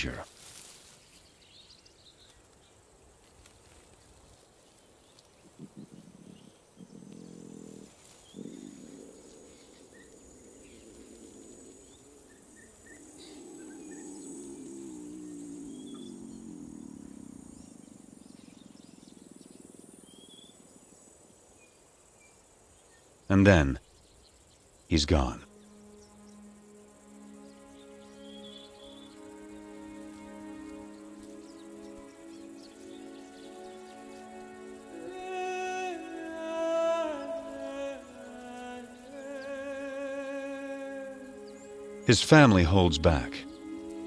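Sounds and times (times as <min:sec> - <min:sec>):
birds chirping: 0:00.0 - 0:44.0
insects buzzing: 0:00.0 - 0:44.0
lion calling: 0:05.5 - 0:19.3.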